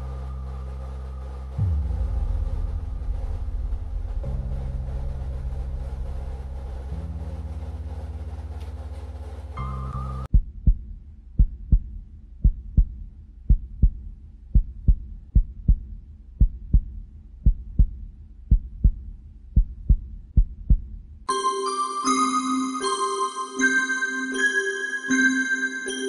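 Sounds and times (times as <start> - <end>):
heartbeat thumps: 10.3 - 21.2
chiming bell-like music: 21.3 - 26.0.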